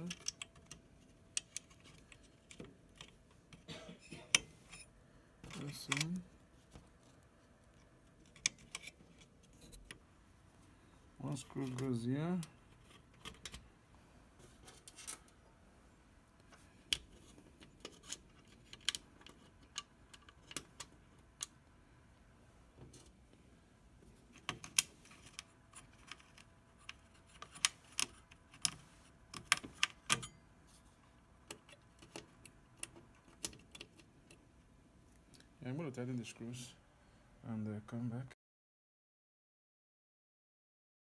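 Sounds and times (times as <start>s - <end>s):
clicks and rattles of parts: 0.0s - 3.7s, 8.0s - 10.0s, 11.4s - 13.7s, 16.5s - 21.6s, 24.3s - 30.8s, 31.4s - 34.4s.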